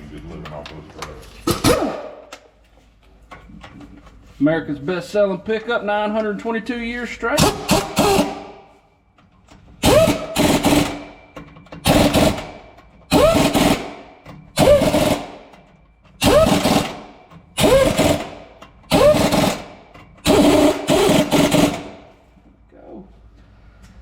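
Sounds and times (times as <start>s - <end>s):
impact wrench hammering: 7.4s - 8.7s, 9.5s - 22.1s.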